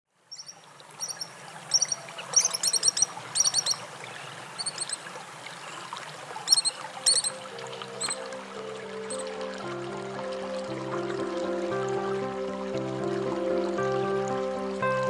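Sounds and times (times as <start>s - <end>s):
kingfisher high chirps: 0.3s - 5.1s, 6.4s - 8.4s, 9.0s - 9.3s.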